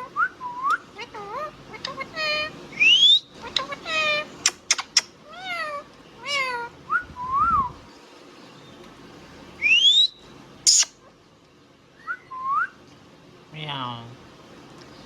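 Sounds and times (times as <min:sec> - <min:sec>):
parrot calls and whistles: 0:00.0 - 0:07.8, 0:09.6 - 0:11.1, 0:12.0 - 0:12.8.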